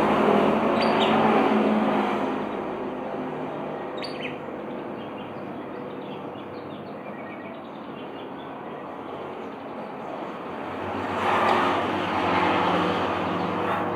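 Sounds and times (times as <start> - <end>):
vehicle passing by: 0.0 - 3.7, 10.6 - 13.9
traffic engine hum: 0.0 - 3.8, 10.6 - 13.9.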